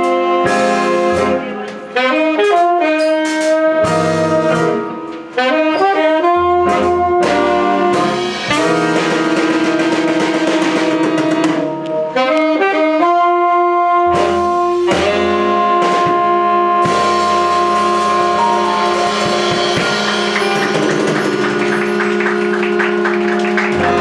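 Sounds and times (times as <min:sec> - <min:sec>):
drum accents: 0:00.0 - 0:05.6, 0:06.6 - 0:11.9, 0:14.1 - 0:24.0
horns holding a chord: 0:00.0 - 0:24.0
cymbal roll: 0:06.7 - 0:11.7, 0:16.8 - 0:24.0.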